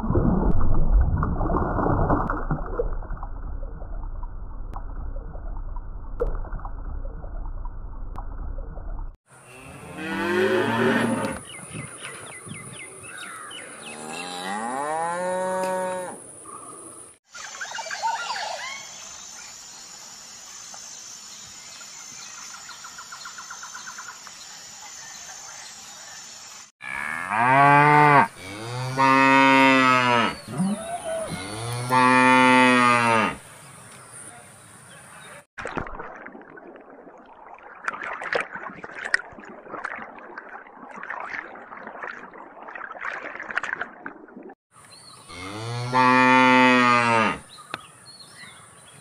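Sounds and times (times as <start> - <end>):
cows mooing long and loud: 9.4 - 11.4, 13.8 - 16.2, 26.8 - 33.4, 45.3 - 47.4.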